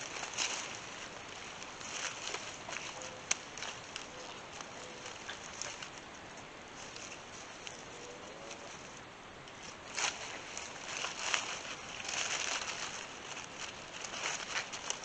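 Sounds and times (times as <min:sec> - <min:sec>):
dry leaves and sticks crackling: 0:00.0 - 0:15.0.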